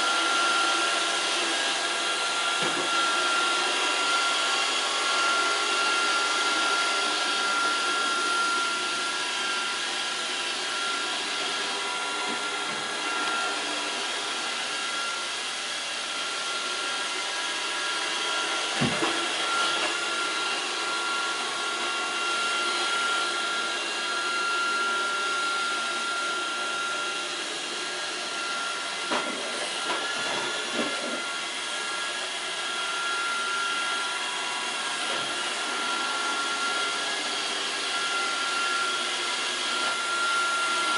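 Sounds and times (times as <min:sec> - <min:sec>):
robot vacuum running: 0:00.0 - 0:40.9.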